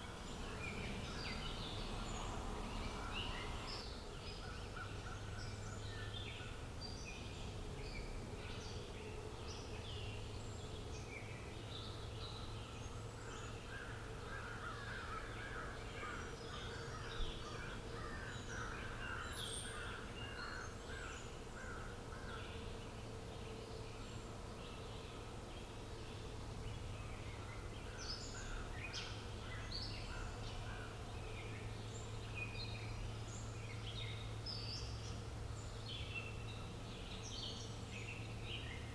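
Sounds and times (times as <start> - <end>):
small birds chirping and singing: 0.0 - 38.9.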